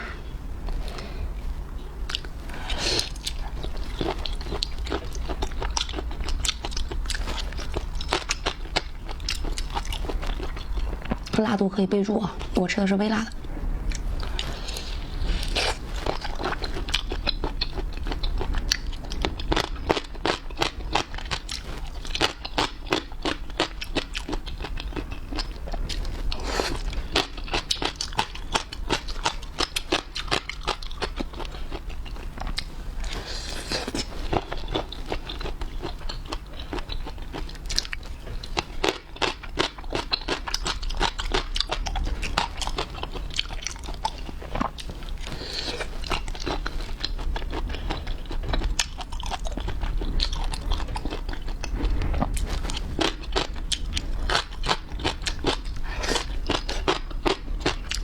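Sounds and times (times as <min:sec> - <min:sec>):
person chewing crunchy food: 0:00.0 - 0:11.4, 0:13.3 - 0:58.0.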